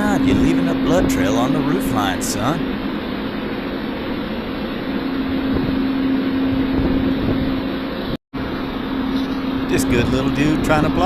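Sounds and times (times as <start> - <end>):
wind noise: 0.0 - 8.1
low machine hum: 0.0 - 11.0.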